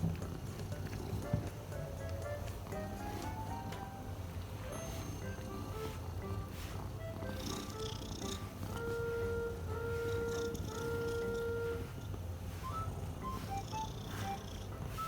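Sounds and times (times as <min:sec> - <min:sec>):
cat purring: 0:00.0 - 0:01.5, 0:04.8 - 0:15.0
background music: 0:00.0 - 0:12.0.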